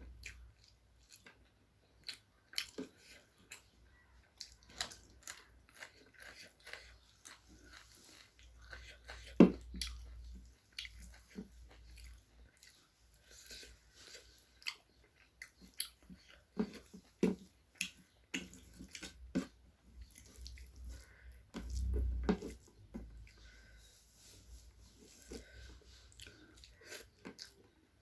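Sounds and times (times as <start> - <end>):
wet chewing and lip smacks: 0.0 - 22.0.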